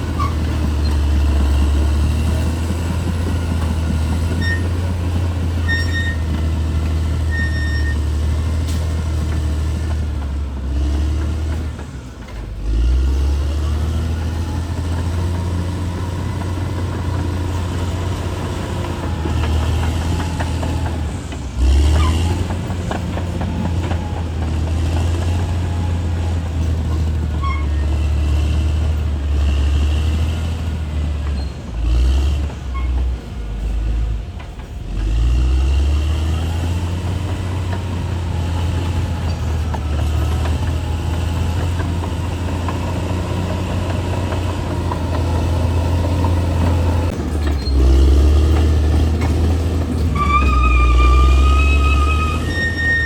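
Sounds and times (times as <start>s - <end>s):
bulldozer diesel engine under load: 0.0s - 53.0s
short high-pitched squeals: 4.3s - 4.8s, 5.6s - 6.4s, 7.2s - 8.2s, 50.1s - 53.0s.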